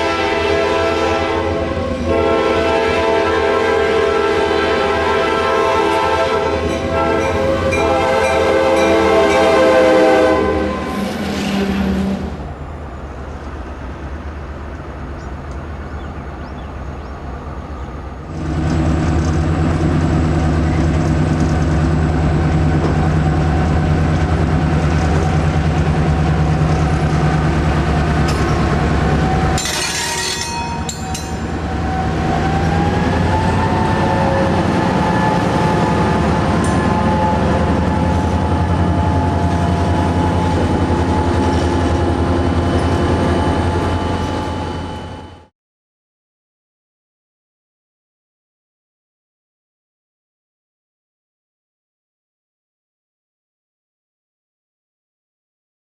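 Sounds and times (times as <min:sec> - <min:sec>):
locomotive air horn chord: 0:00.0 - 0:12.4, 0:28.6 - 0:45.5
locomotive engine drone: 0:00.0 - 0:45.5.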